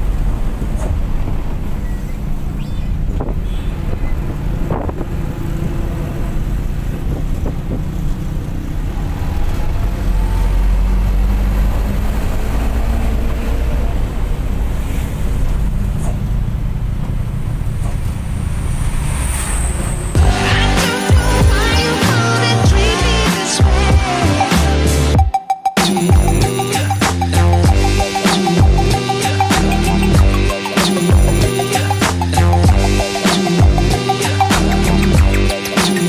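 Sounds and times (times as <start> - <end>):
road and wind noise: 0.0 - 24.1
bus engine drone: 0.0 - 25.2, 26.1 - 36.0.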